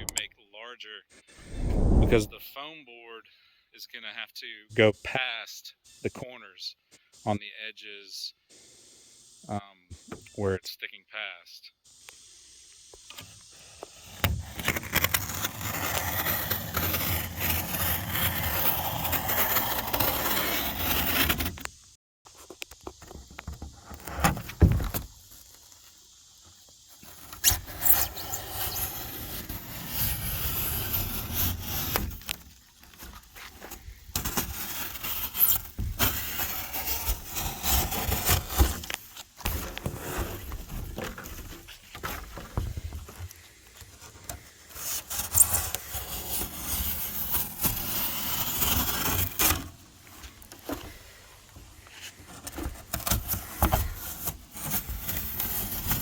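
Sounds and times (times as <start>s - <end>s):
knife squeaking through foam: 14.5s - 21.5s, 27.0s - 32.4s, 33.0s - 38.9s, 44.8s - 49.6s.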